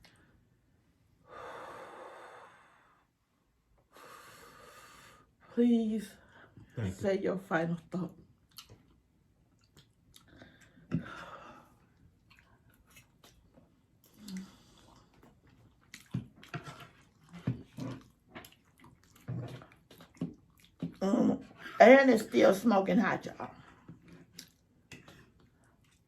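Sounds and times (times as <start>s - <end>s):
close chewing and mouth sounds: 8.2s - 11.1s, 11.7s - 22.6s, 23.4s - 26.0s.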